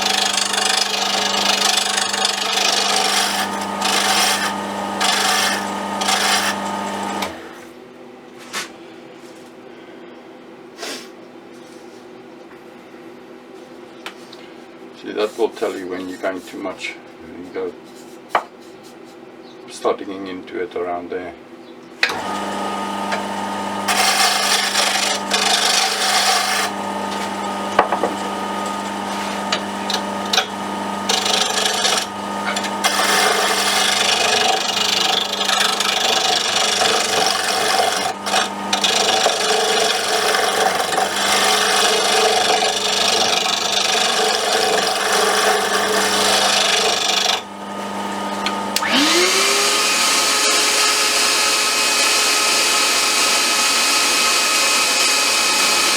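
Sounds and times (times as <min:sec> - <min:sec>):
turning tool cutting wood: 0:00.0 - 0:07.7, 0:22.0 - 0:55.9
wood lathe motor hum: 0:00.0 - 0:07.7, 0:22.0 - 0:55.9.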